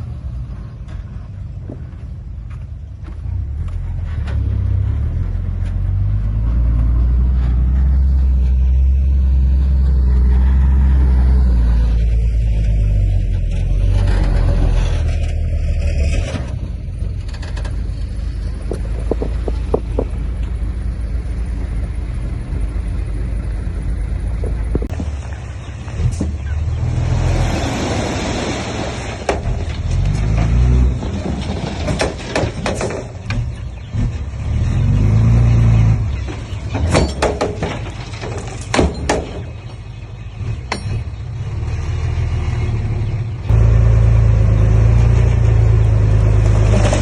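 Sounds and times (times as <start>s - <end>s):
heavy diesel engine under load: 0.0s - 47.0s
sharp knocks: 18.6s - 20.2s.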